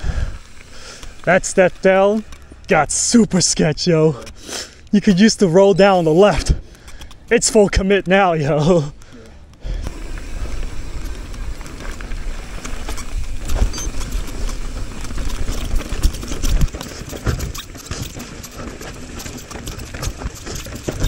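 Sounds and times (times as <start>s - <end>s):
bike knocking and rattling: 0.0s - 21.0s
tyres rumbling on rough trail: 0.0s - 21.0s.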